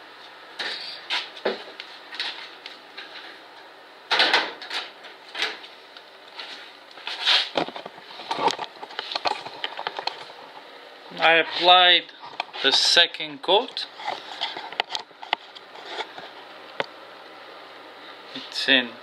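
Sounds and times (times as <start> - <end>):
objects knocking and clattering: 7.6 - 10.5.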